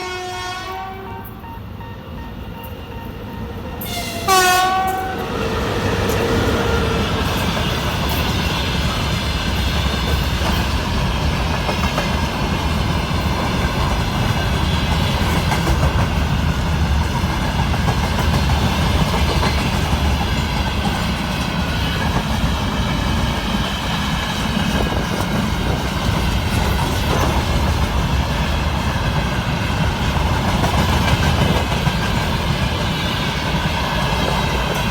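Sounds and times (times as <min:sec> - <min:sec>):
locomotive horn: 0:00.0 - 0:05.3
train passing rumble: 0:00.0 - 0:34.9
train wheel clatter: 0:05.9 - 0:34.9.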